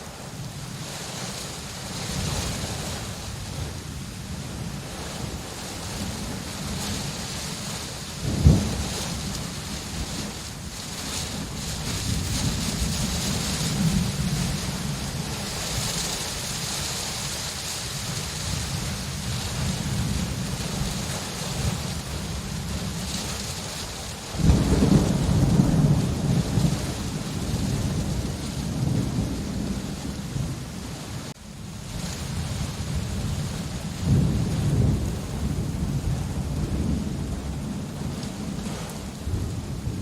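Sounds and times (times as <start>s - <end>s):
steady rain falling: 0.0s - 40.0s
thunder rumbling: 0.0s - 40.0s
loud peal of thunder: 8.2s - 9.2s, 24.4s - 30.7s, 32.5s - 38.6s.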